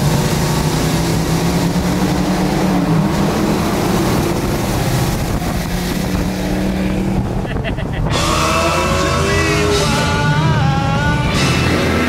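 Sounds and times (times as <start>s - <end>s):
car engine running loudly: 0.0s - 12.0s.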